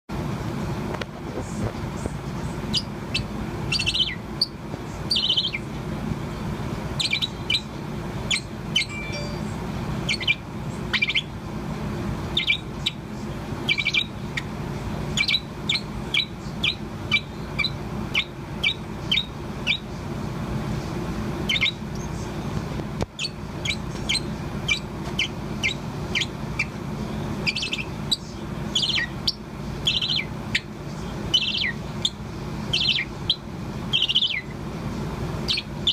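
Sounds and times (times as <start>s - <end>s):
steady low hum: 0.1s - 35.9s
parrot chirping and warbling: 2.6s - 5.8s, 6.9s - 11.4s, 12.3s - 19.9s, 21.4s - 22.2s, 23.2s - 26.8s, 27.4s - 34.6s, 35.4s - 35.9s.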